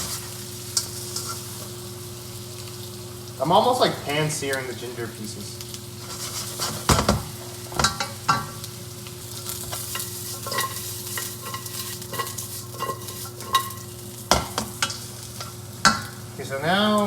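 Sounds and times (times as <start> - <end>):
utensil scraping and knocking wok: 0.0 - 1.8, 6.0 - 8.7, 9.3 - 16.2
ginger sizzling in fat: 0.0 - 17.0.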